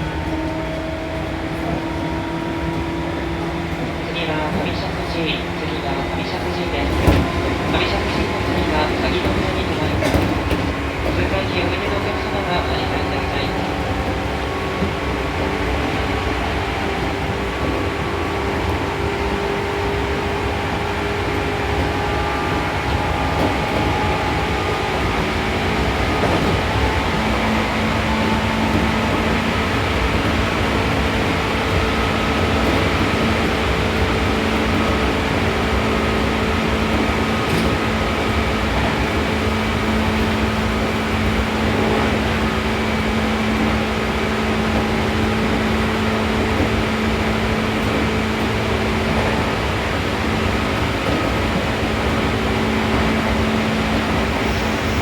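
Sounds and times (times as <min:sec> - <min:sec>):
train motor and gear hum: 0:00.0 - 0:55.0
train rolling noise: 0:00.0 - 0:55.0.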